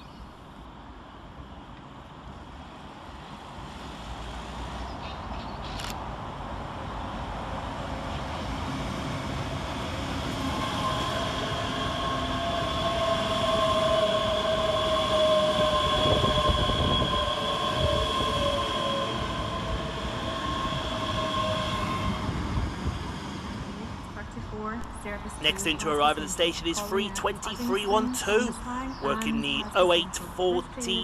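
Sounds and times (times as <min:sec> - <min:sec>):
electric train passing: 0:06.1 - 0:24.2
high-pitched train whine: 0:07.8 - 0:24.3, 0:24.9 - 0:31.0.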